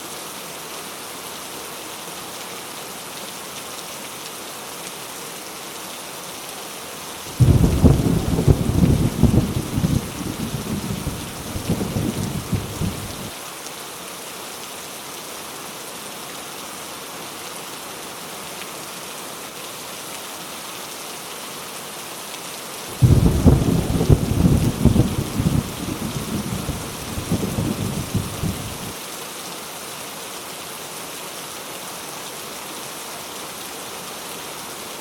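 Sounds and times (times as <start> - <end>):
heavy rain falling: 0.1 - 35.0
thunder rumbling: 7.3 - 13.3, 23.0 - 28.9
thunder clap: 7.4 - 13.3, 23.0 - 28.9.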